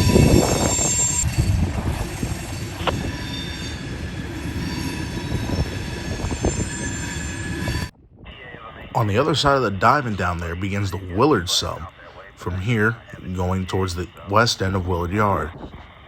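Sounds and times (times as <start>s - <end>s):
train wheels squealing: 0.0s - 7.9s
low train rumble: 0.0s - 16.0s
wind buffeting microphone: 0.0s - 16.0s.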